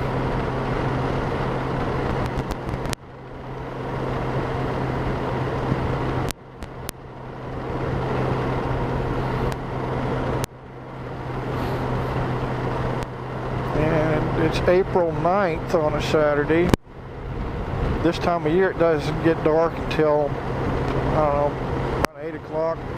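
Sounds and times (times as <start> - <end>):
motorcycle engine hum: 0.0 - 22.9
road noise: 0.0 - 22.9
wind on microphone: 17.0 - 18.1.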